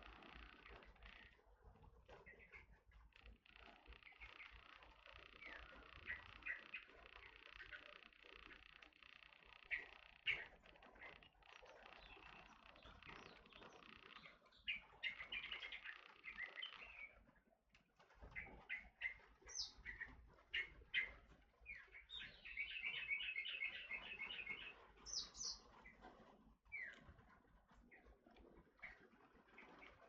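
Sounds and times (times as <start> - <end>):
bird chirping: 2.3 - 17.2, 18.4 - 25.7.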